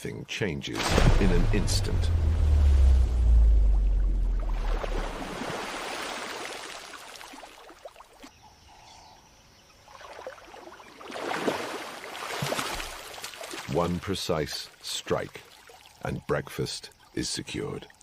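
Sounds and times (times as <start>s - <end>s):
water splashing and sloshing: 0.8s - 8.4s, 9.9s - 16.0s.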